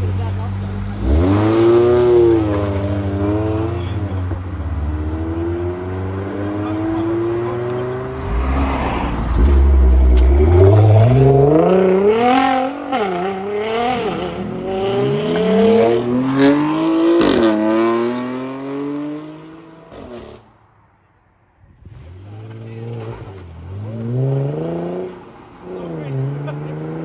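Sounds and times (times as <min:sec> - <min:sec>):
sports car engine accelerating: 0:00.0 - 0:20.5, 0:21.8 - 0:27.0
exhaust crackle: 0:07.7 - 0:12.9.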